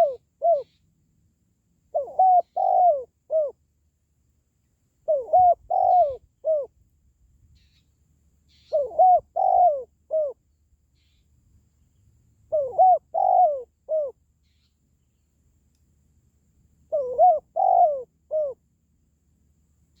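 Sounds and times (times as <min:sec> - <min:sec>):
dove cooing: 0:00.0 - 0:00.8, 0:01.9 - 0:03.6, 0:05.0 - 0:06.7, 0:08.5 - 0:10.4, 0:12.5 - 0:14.6, 0:16.9 - 0:18.6.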